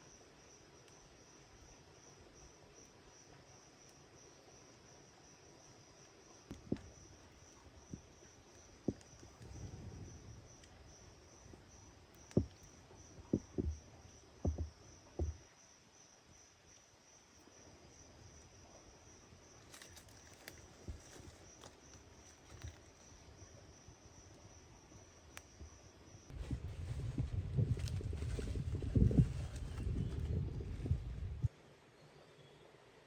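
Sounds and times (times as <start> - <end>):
insects trilling: 0.0 - 26.4
short knocks and thuds: 6.5 - 7.0, 12.3 - 13.8, 14.4 - 15.4.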